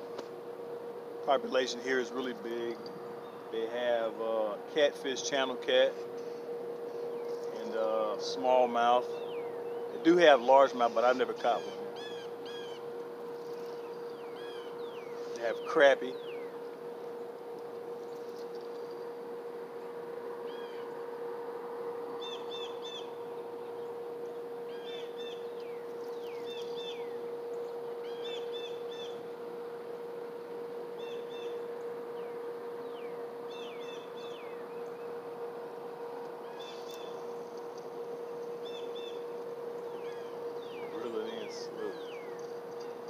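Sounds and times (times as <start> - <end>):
continuous hiss: 0.0 - 43.0
steady hum: 0.0 - 43.0
small birds chirping: 2.7 - 4.6, 6.8 - 19.2, 22.2 - 29.3, 30.9 - 35.6, 36.2 - 43.0.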